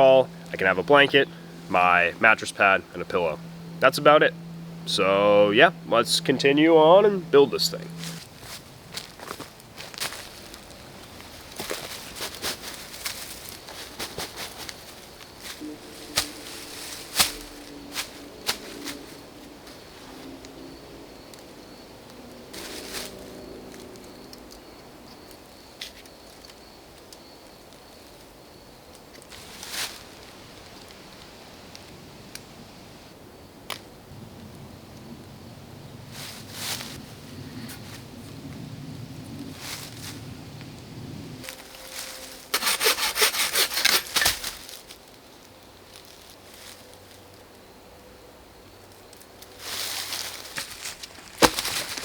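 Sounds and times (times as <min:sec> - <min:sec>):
faint high tone: 0:15.6 - 0:19.4
rustling: 0:41.4 - 0:45.0, 0:49.6 - 0:52.0
hand saw cutting wood: 0:42.5 - 0:44.6.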